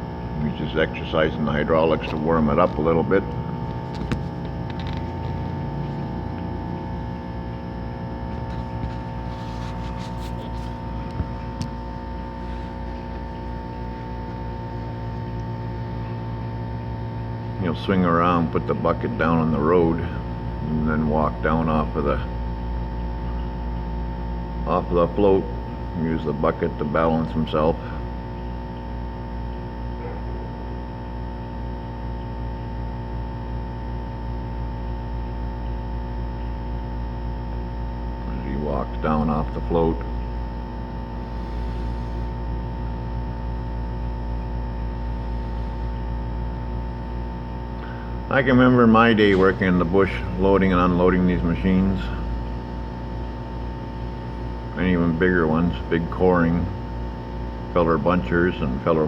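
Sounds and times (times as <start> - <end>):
low mechanical hum: 0.0 - 59.0
engine drone: 47.8 - 53.4.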